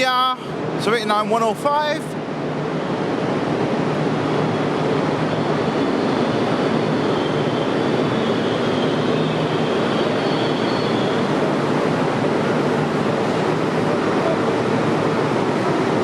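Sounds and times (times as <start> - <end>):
train wheels rumbling on rail: 2.2 - 16.0
faint high-pitched squeal: 5.9 - 11.4.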